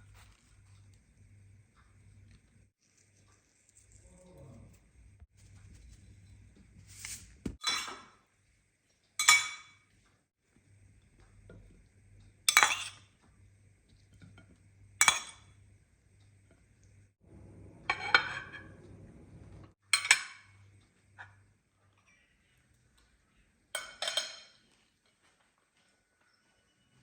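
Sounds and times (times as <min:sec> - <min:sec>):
faint low hum: 0:00.0 - 0:07.5, 0:13.1 - 0:19.7
dishes and cutlery clinking: 0:07.5 - 0:08.2, 0:09.2 - 0:09.9, 0:12.5 - 0:13.2, 0:17.8 - 0:19.0, 0:20.0 - 0:20.6, 0:23.8 - 0:24.7.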